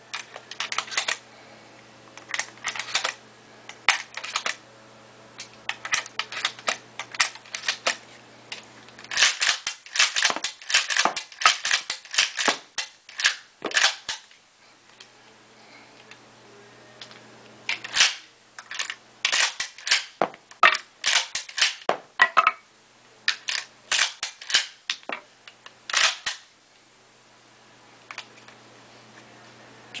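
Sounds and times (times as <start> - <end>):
faint low hum: 13.0 - 30.0.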